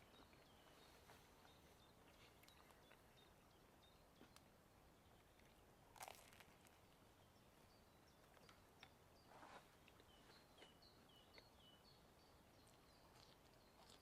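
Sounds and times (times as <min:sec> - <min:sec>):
soft crunch: 0:00.0 - 0:03.3, 0:04.1 - 0:07.0, 0:08.2 - 0:11.6, 0:12.6 - 0:14.0
small bird chirping: 0:00.0 - 0:05.6, 0:06.6 - 0:14.0
steady outdoor hiss: 0:00.0 - 0:14.0.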